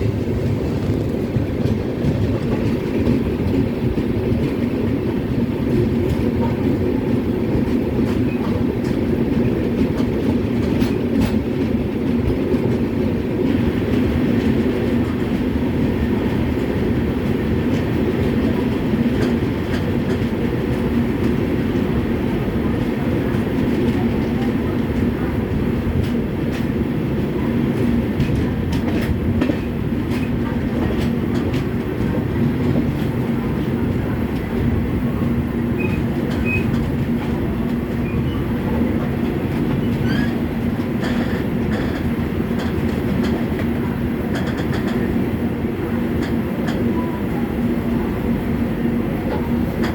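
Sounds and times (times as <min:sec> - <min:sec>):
train wheels rumbling on rails: 0:00.0 - 0:49.9
wheels clicking over rail joints: 0:35.8 - 0:43.7, 0:44.3 - 0:45.2.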